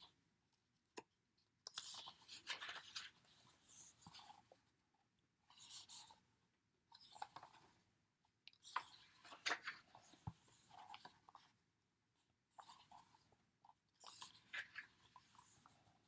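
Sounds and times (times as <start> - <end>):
paper rustling: 1.8 - 4.4.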